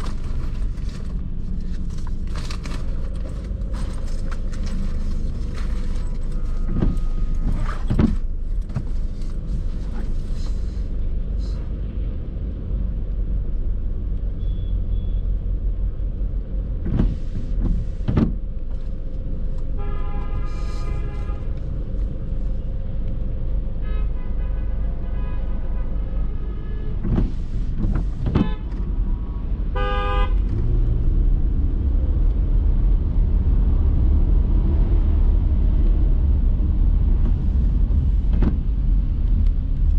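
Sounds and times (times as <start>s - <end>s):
car engine and road rumble: 0.0s - 39.9s
vehicle horns honking: 19.8s - 21.5s, 29.8s - 30.4s.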